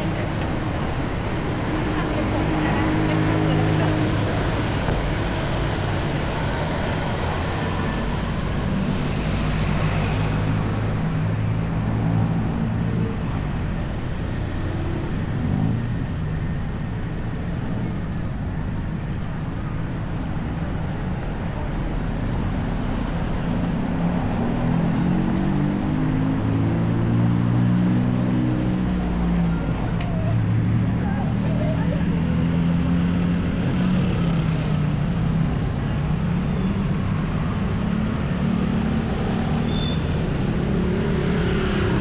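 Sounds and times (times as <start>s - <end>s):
road noise: 0.0s - 42.0s
vehicle engines humming: 0.0s - 42.0s
engine revving: 38.1s - 42.0s.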